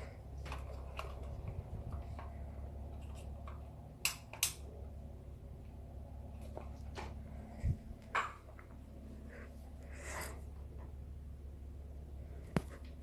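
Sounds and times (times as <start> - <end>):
wall fan humming: 0.0 - 13.0
sharp clicks: 4.0 - 4.6.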